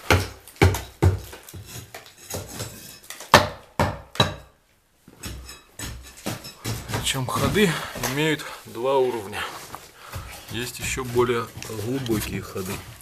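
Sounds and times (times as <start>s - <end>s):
sharp knocks and clatters: 5.1s - 8.3s, 10.0s - 13.0s.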